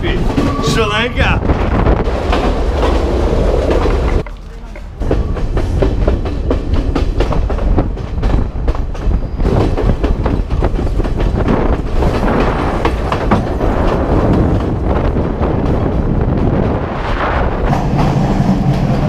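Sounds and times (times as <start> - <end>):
train rushing noise: 0.0 - 19.0
train wheels clacking over rail joints: 1.5 - 16.8, 17.7 - 19.0.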